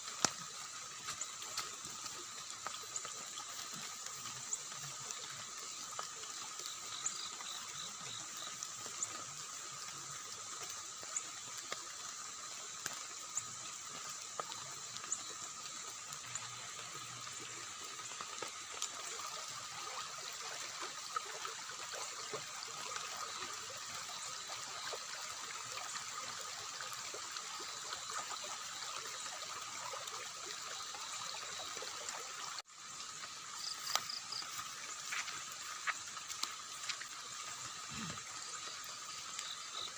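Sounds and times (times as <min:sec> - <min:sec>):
river water running: 0:00.0 - 0:39.9
faint ticks: 0:33.6 - 0:39.9.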